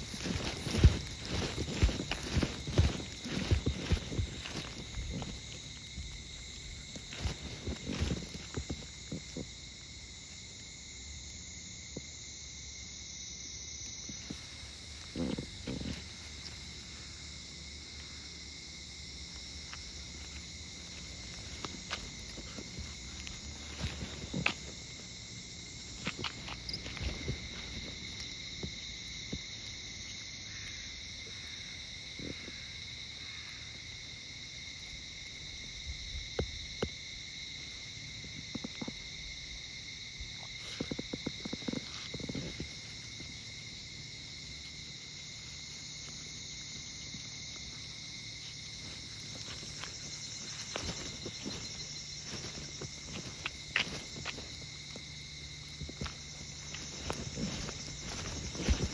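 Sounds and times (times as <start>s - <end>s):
clothing rustling: 0.0s - 5.9s, 56.5s - 58.9s
soft footsteps: 0.0s - 9.9s, 14.0s - 29.8s, 40.2s - 43.9s, 44.6s - 58.9s
insects chirring: 0.0s - 58.9s.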